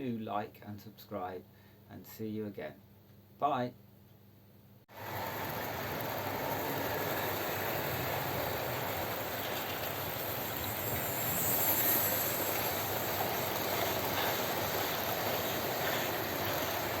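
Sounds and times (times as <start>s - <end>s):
model trains running on track: 4.9s - 17.0s.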